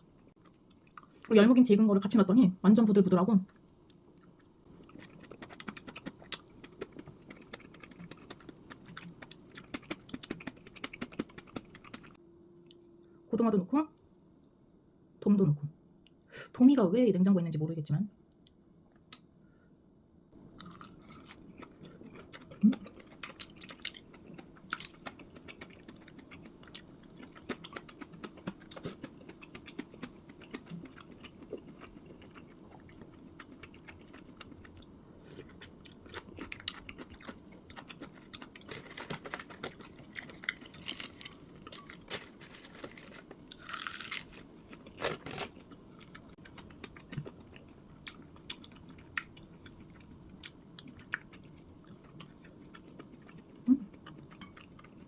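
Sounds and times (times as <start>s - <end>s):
person chewing and biting: 4.2s - 12.2s, 20.6s - 55.0s.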